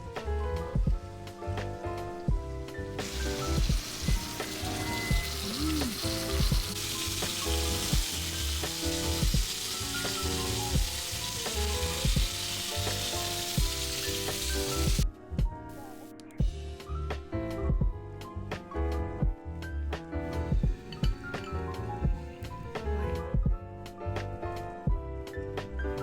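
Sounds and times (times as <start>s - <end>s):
background music: 0.0s - 26.0s
food sizzling in a pan: 2.6s - 15.0s, 20.6s - 23.2s.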